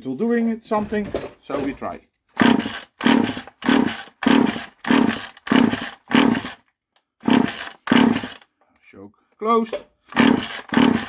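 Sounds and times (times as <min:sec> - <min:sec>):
chainsaw engine turning over: 0:02.4 - 0:06.6, 0:07.2 - 0:08.4, 0:10.1 - 0:11.0
chainsaw starter cord yanked: 0:02.4 - 0:06.6, 0:07.2 - 0:08.5, 0:09.7 - 0:11.0.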